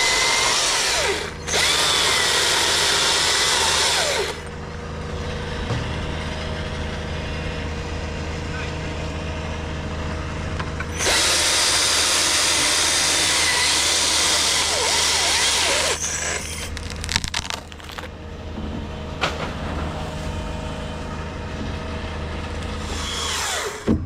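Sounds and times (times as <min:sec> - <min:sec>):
chainsaw cutting through wood: 0:00.0 - 0:07.8, 0:10.9 - 0:18.1, 0:22.6 - 0:24.0
wood cracking and knocking: 0:16.5 - 0:19.9.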